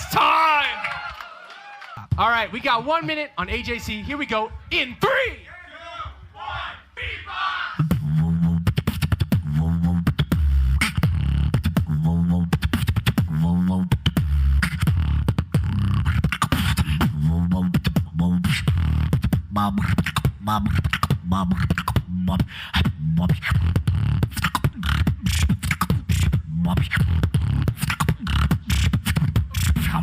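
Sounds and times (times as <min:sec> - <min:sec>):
beatboxing: 0:07.8 - 0:30.0.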